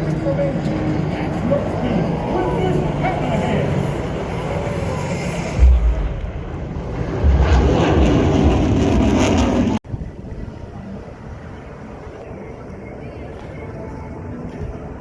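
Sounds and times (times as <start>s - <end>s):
jet engine roar: 0.0s - 10.4s.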